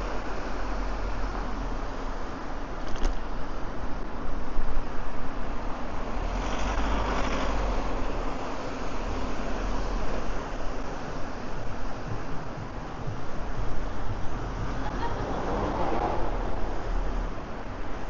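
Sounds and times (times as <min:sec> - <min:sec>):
road traffic noise: 0:00.0 - 0:18.0
vehicle passing: 0:06.1 - 0:17.8.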